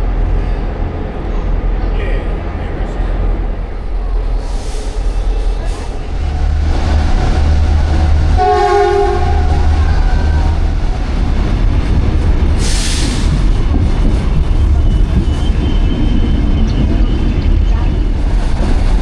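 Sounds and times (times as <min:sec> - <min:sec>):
train rumbling: 0:00.0 - 0:19.0
train horn: 0:08.0 - 0:10.8.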